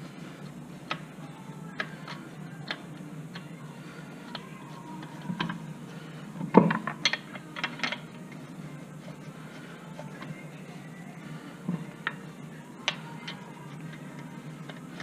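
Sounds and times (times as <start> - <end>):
wrench clicking on lug nuts: 6.8 - 8.0.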